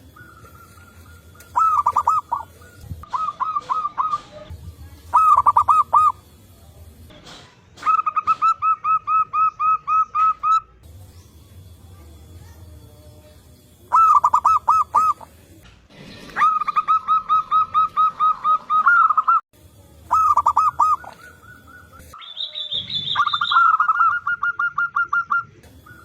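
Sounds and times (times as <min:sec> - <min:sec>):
doves cooing: 0:00.0 - 0:06.3, 0:07.8 - 0:10.7, 0:13.9 - 0:15.6, 0:20.1 - 0:26.0.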